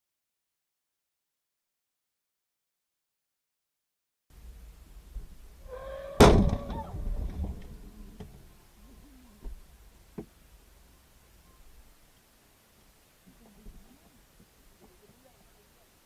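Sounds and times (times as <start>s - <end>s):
vehicle crash impact: 5.7s - 8.4s.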